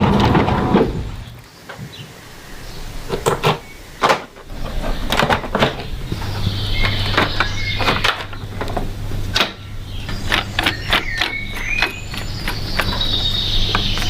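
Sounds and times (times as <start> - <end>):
steady low hum: 0.0 - 14.0
sharp knocks and clanks: 3.1 - 14.0.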